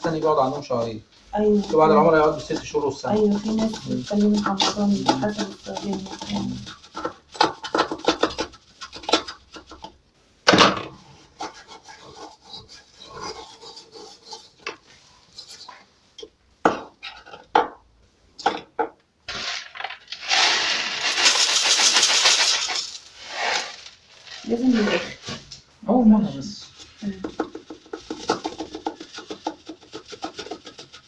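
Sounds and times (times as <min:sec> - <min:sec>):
rushing hiss: 0:20.2 - 0:24.4.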